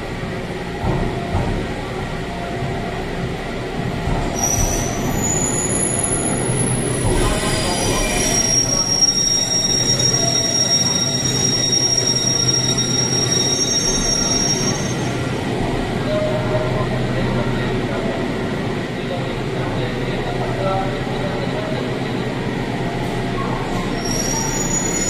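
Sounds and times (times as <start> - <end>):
electric train rumbling: 0.0 - 25.0
high-pitched brake squeal: 4.3 - 15.3, 23.6 - 25.0.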